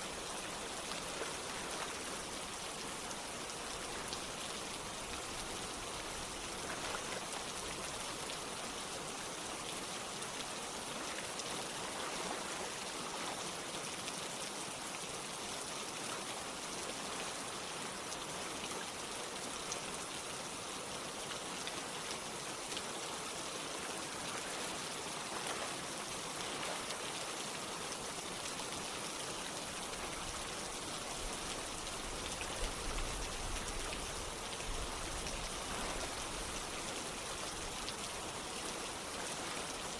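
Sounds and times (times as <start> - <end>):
flowing stream: 0.0 - 39.9
raindrops pattering: 29.4 - 39.9.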